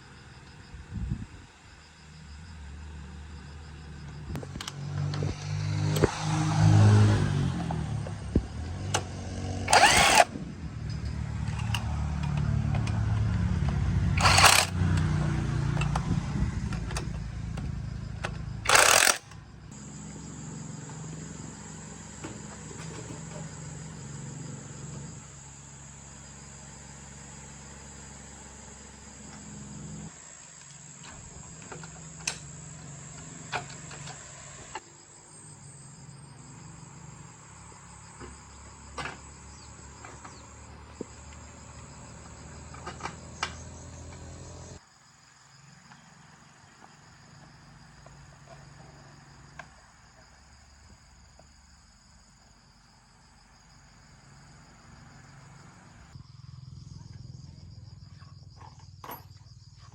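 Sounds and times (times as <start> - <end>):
motorbike engine running: 4.4 - 24.4.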